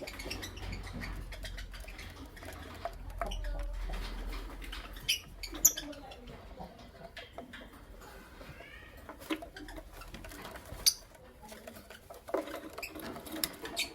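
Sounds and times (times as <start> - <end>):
beaks and feet clicking and scratching: 0.0 - 13.9.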